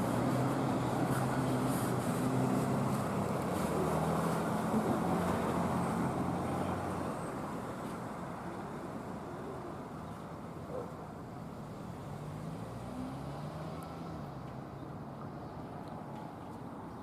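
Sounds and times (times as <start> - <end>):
fire truck engine driving off: 0.0 - 9.2
road noise: 0.0 - 17.0.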